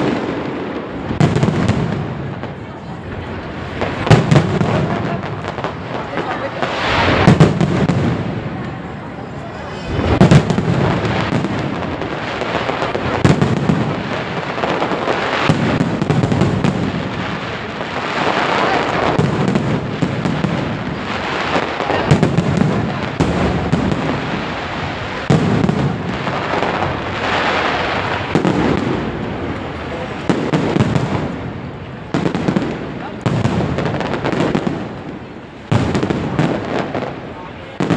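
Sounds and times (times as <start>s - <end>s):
fireworks bursting and crackling: 0.0s - 37.9s.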